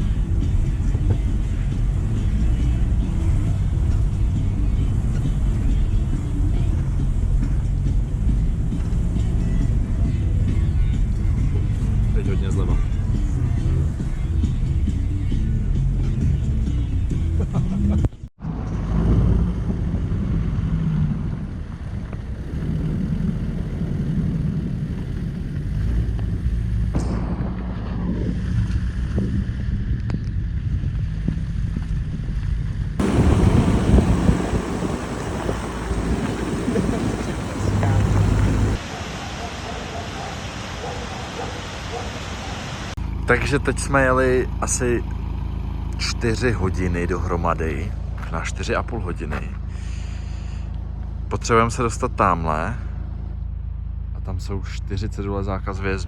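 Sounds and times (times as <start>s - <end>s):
jeep engine and tyres rumbling: 0.0s - 56.0s.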